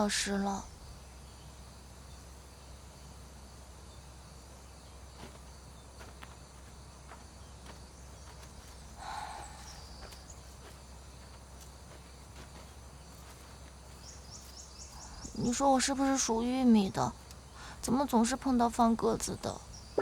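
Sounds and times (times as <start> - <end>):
high insect chirring: 0.0 - 20.0.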